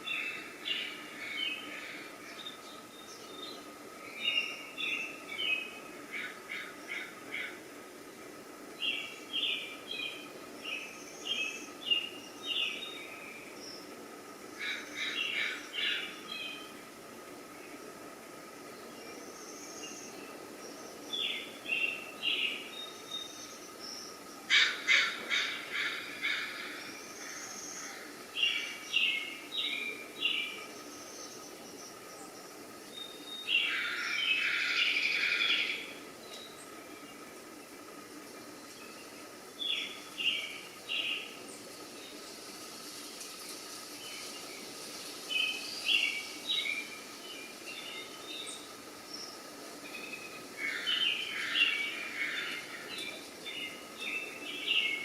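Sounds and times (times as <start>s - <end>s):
faint constant hum: 0.0s - 55.0s
outdoor background noise: 0.0s - 55.0s
harsh bird calls: 14.6s - 16.8s, 19.1s - 36.4s, 47.8s - 55.0s.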